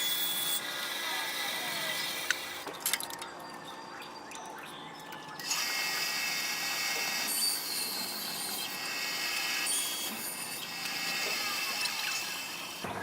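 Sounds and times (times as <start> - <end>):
power tool whining: 0.0 - 2.7, 5.4 - 13.0.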